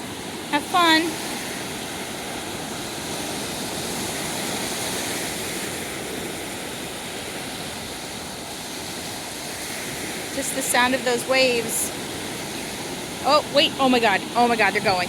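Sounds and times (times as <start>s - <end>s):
ocean surf washing onto beach: 0.0s - 15.0s.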